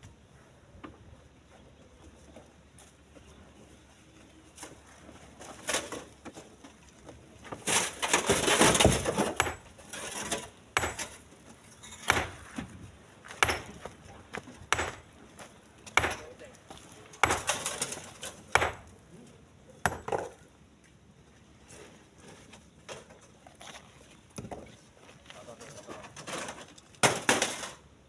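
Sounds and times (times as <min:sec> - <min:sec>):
stones knocking into truck bed: 0:07.6 - 0:11.2, 0:26.3 - 0:27.8.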